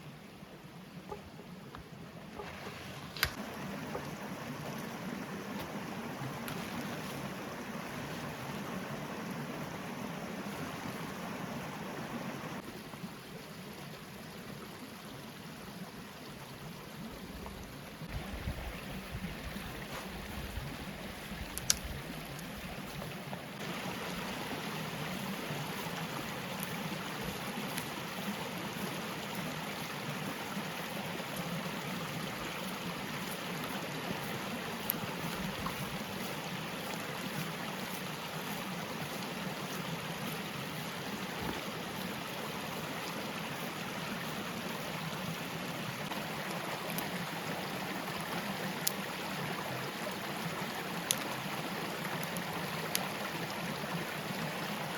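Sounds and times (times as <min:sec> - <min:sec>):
stream water rushing: 0:00.0 - 0:54.9
faint small ticks: 0:21.5 - 0:23.1, 0:25.9 - 0:28.0, 0:34.8 - 0:36.0, 0:48.8 - 0:49.0, 0:51.0 - 0:51.4, 0:52.1 - 0:53.1.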